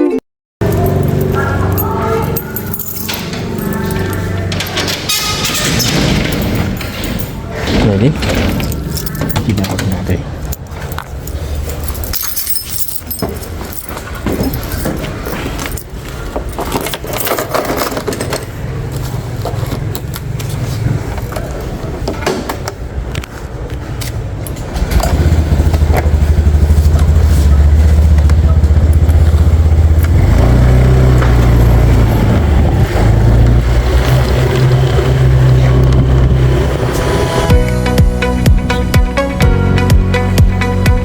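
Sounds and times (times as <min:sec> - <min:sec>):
small engine rumbling: 0:00.6 - 0:22.1, 0:24.4 - 0:40.8
knocks and clatter: 0:00.6 - 0:23.3, 0:24.4 - 0:36.8.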